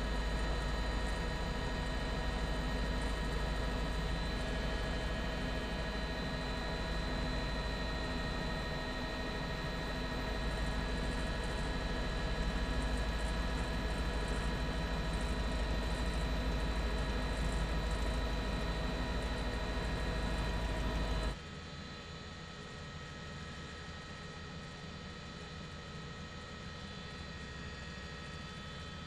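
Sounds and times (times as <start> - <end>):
electrical hum: 0.0 - 21.4.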